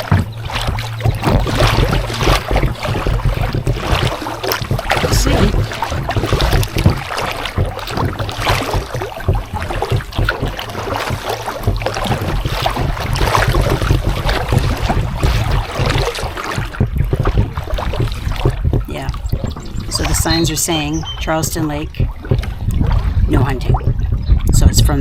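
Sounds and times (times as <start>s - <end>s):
paddle splashing in water: 0.0s - 24.6s
wind buffeting microphone: 0.0s - 25.0s.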